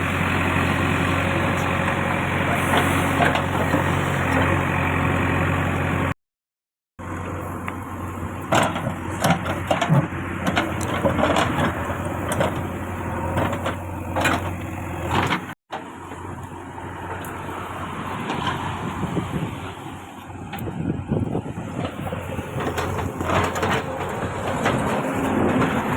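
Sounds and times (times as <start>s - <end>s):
heavy machinery diesel engine: 0.0s - 6.2s, 7.0s - 25.9s.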